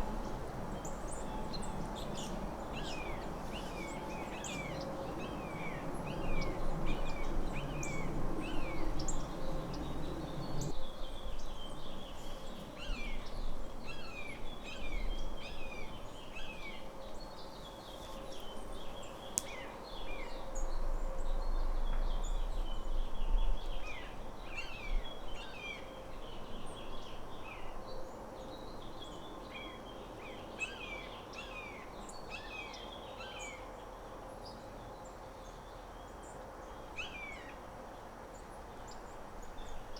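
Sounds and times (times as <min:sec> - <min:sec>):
low rumble: 0:00.0 - 0:10.7
small birds chirping: 0:00.0 - 0:16.5.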